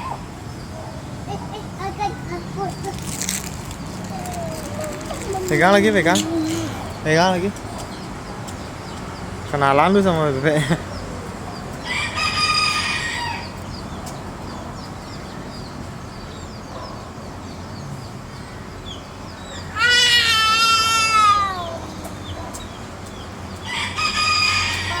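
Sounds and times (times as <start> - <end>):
small bird chirps: 1.3 - 7.0
rooster crowing: 11.8 - 13.6, 23.7 - 25.0.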